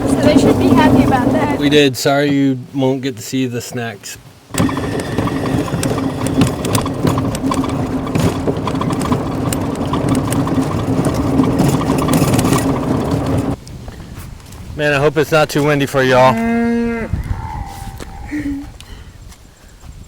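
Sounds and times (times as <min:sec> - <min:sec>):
vehicle engine rattling: 0:00.0 - 0:01.9, 0:04.5 - 0:13.6.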